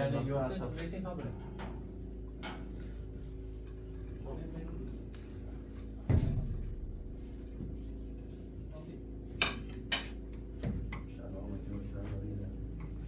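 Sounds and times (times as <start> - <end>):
steady low hum: 0.0 - 13.0
heavy thump: 6.0 - 8.0
soft knock: 6.0 - 8.4.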